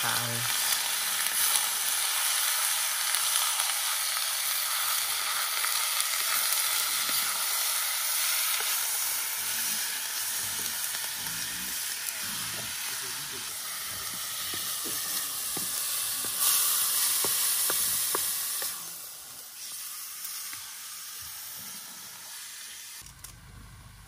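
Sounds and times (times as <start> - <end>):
meat sizzling in a pan: 0.0 - 23.0.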